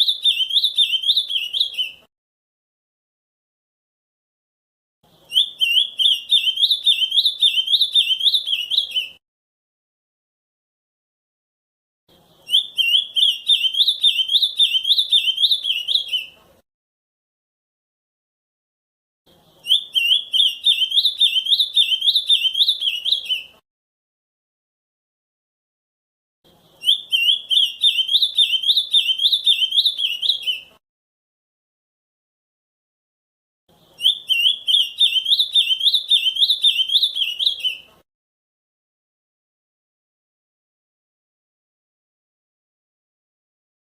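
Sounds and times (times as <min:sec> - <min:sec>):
bird singing run of clear notes: 0:00.0 - 0:02.1, 0:05.1 - 0:09.2, 0:12.2 - 0:16.4, 0:19.3 - 0:23.6, 0:26.5 - 0:30.8, 0:33.7 - 0:37.9.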